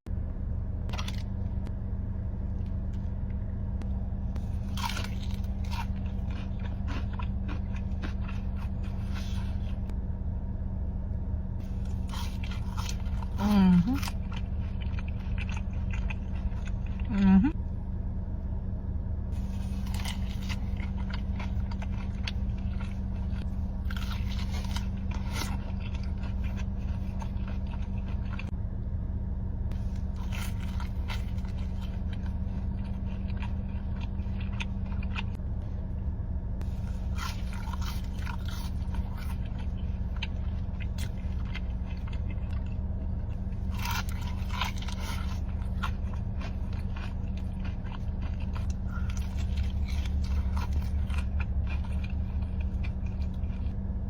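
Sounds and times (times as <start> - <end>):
steady low hum: 0.0 - 54.0
crunchy bites and chewing: 0.9 - 1.8, 3.8 - 10.0, 11.6 - 17.3, 19.3 - 28.6, 29.7 - 35.9, 36.5 - 54.0.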